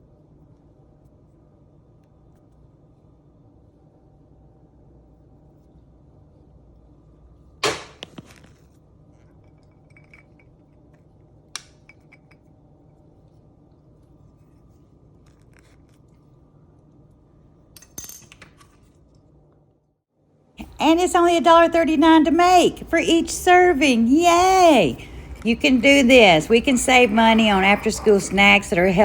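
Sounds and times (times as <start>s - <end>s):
faint steady hum: 20.6s - 29.0s.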